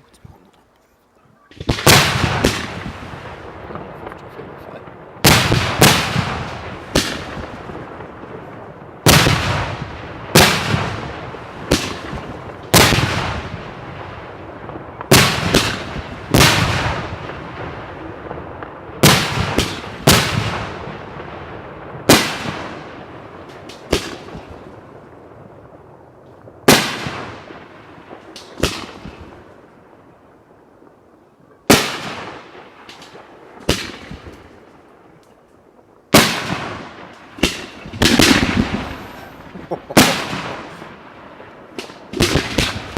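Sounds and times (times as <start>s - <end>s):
firework shells bursting: 36.2s - 42.9s.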